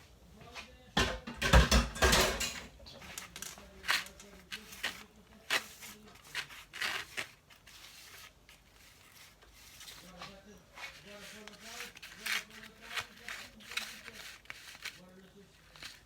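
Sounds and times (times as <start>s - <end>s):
dishes and utensils clattering: 1.0s - 3.6s.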